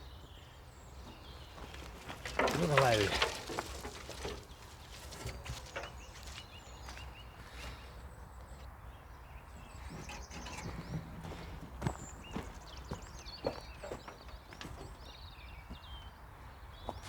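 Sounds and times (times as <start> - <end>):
small birds chirping: 0.0 - 17.0
shovel moving wood chips: 1.6 - 6.4.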